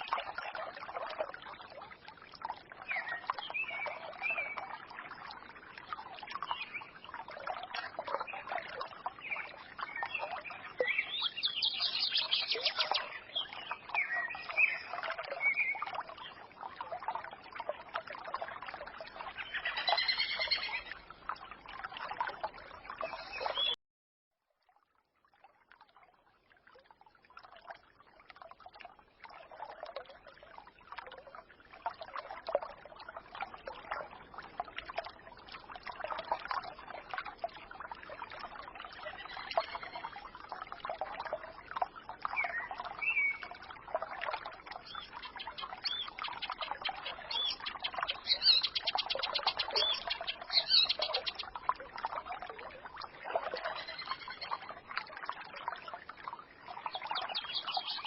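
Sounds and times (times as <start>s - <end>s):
stream trickling: 0.0s - 23.8s, 24.4s - 58.0s
songbirds calling: 9.2s - 15.8s, 19.2s - 21.0s, 23.0s - 23.8s, 44.8s - 51.6s, 53.5s - 54.6s, 56.8s - 58.0s.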